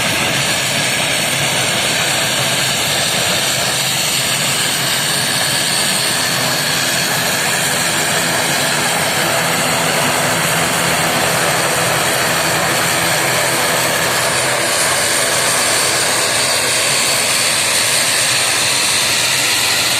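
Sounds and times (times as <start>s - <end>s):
airliner engines running: 0.0s - 19.9s
high engine whine: 0.0s - 19.9s.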